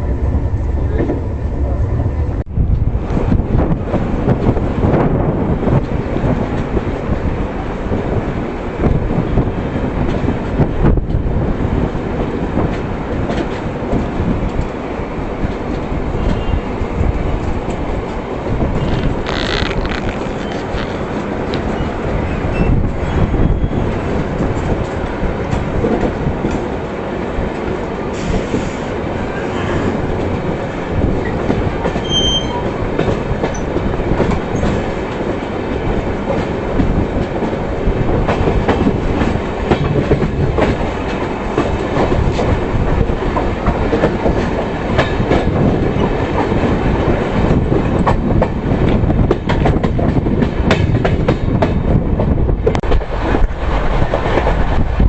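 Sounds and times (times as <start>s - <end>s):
train rumbling along track: 0.0s - 55.0s.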